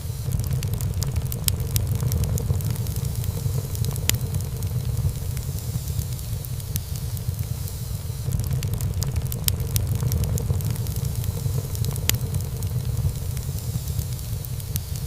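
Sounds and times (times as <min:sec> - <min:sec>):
fire crackling and popping: 0:00.0 - 0:15.0
fire flames rumbling: 0:00.1 - 0:15.0.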